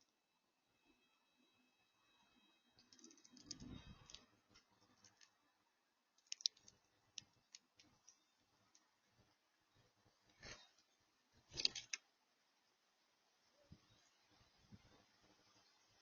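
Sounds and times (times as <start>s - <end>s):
animal feeding clicks and taps: 6.2s - 8.9s.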